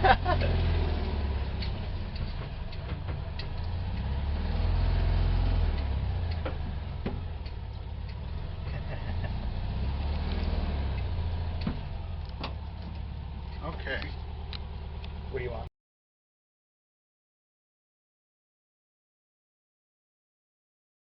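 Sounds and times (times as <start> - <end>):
vehicle engine rumbling: 0.0 - 15.7.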